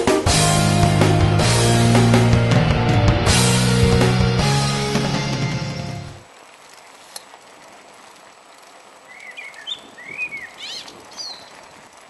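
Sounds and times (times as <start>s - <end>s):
small bird chirping: 9.1s - 11.6s.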